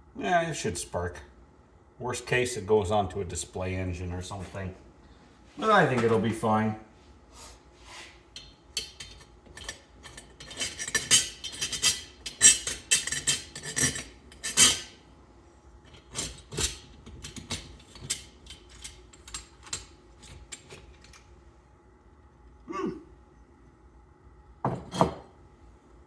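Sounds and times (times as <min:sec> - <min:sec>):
metal tools clinking on workbench: 0:08.8 - 0:14.9.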